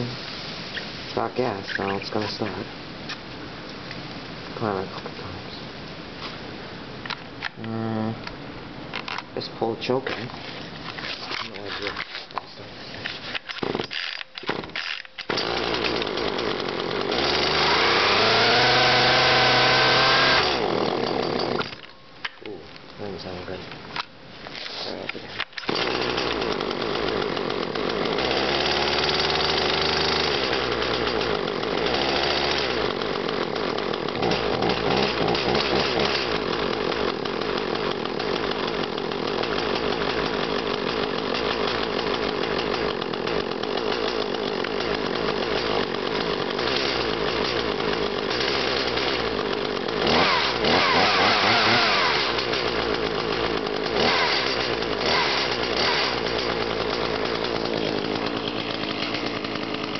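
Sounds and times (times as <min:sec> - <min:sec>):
chainsaw idling and revving: 0:13.0 - 0:23.6, 0:24.6 - 0:59.9.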